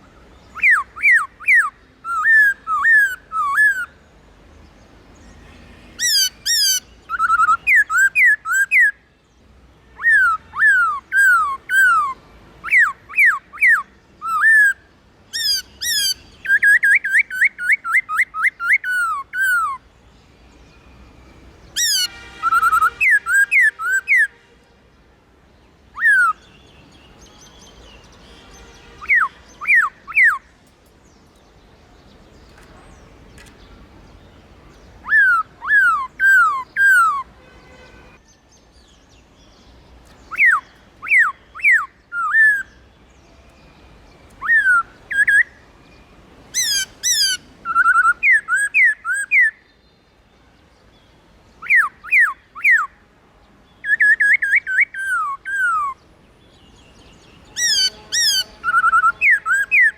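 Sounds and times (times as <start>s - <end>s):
bird whistling downward notes: 6.0s - 8.9s, 40.3s - 42.7s, 46.6s - 49.6s.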